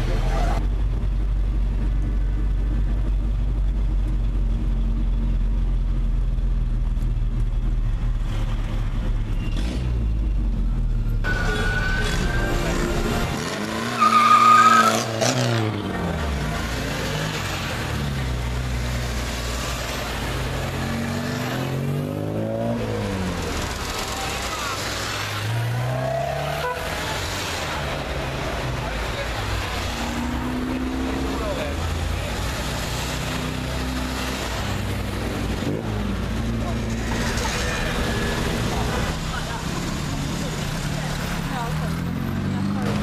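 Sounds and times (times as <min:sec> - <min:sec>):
cars driving past: 0:08.1 - 0:43.0
loud high-pitched tone: 0:11.2 - 0:13.5.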